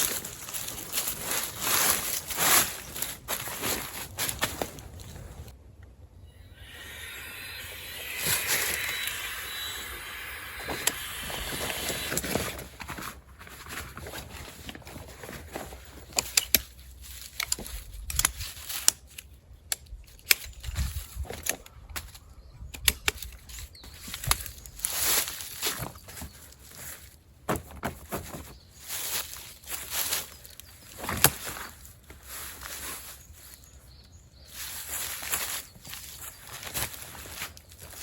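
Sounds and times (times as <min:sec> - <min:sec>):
bag rustling: 0:00.0 - 0:05.5
footsteps on forest floor: 0:00.0 - 0:05.6, 0:06.6 - 0:18.9, 0:23.4 - 0:38.0.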